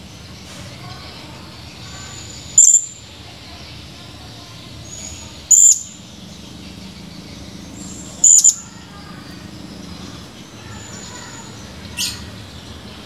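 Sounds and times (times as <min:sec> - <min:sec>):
parrot shrill high calls: 0:02.1 - 0:03.0, 0:05.0 - 0:06.0, 0:08.2 - 0:08.7.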